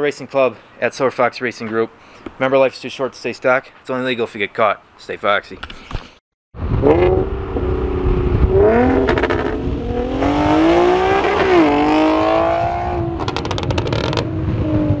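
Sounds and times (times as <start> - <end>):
car engine accelerating: 6.7 - 15.0.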